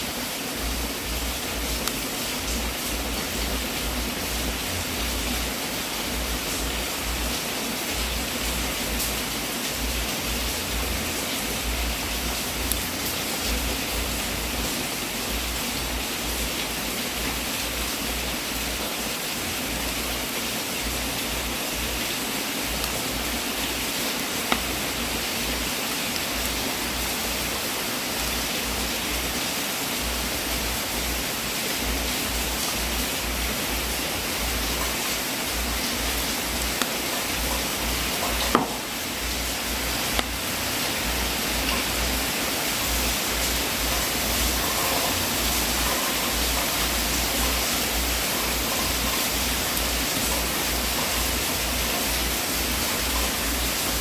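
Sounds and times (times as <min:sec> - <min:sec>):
wood fire popping: 0:22.6 - 0:27.4, 0:31.9 - 0:54.0.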